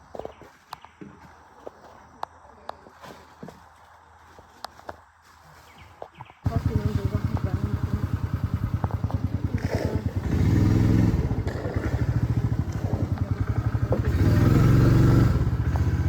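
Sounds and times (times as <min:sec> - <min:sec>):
small engine thumping: 0:06.4 - 0:16.0.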